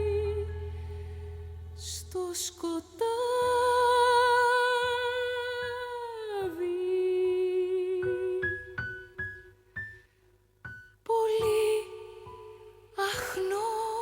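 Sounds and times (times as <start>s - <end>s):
woman singing with vibrato: 0.0s - 8.8s, 11.1s - 14.0s
piano: 0.0s - 14.0s.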